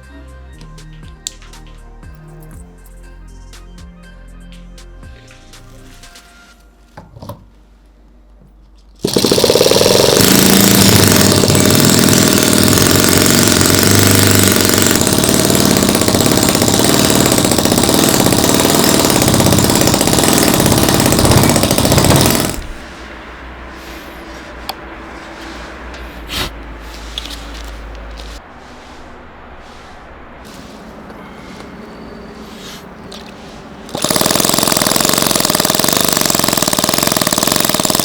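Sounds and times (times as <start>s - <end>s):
model engine running loudly: 9.0s - 22.8s, 33.9s - 38.0s.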